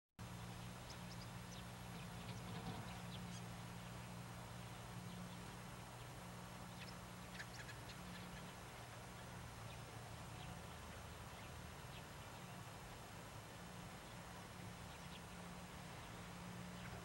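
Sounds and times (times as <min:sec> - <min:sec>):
low hum and hiss: 0:00.2 - 0:17.0
faint bird chirps: 0:00.5 - 0:12.7.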